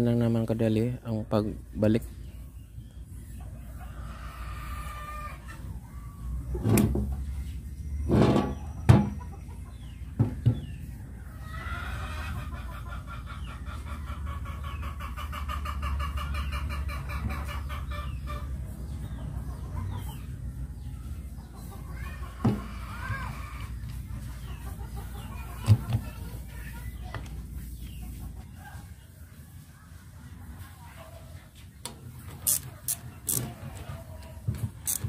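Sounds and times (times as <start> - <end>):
chickens clucking: 0.0 - 35.0
knocks and clunks: 8.0 - 9.2.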